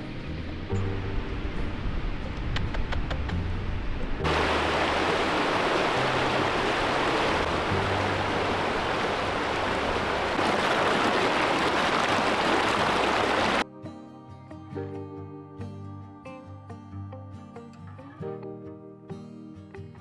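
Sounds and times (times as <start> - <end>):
faint background music: 0.0 - 10.2
stream water rushing: 4.2 - 13.6.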